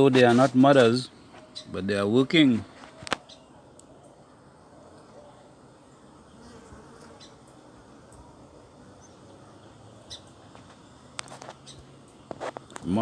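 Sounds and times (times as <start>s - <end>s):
bees buzzing: 3.6s - 13.0s.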